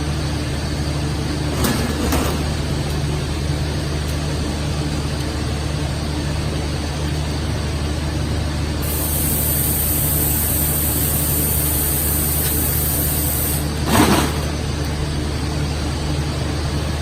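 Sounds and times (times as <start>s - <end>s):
machine hum: 0.0s - 17.0s
high hiss: 8.8s - 13.7s.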